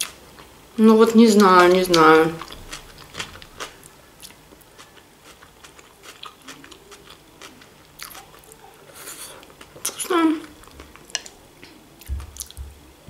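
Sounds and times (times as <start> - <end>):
person chewing with wet mouth clicks: 1.9 - 8.6.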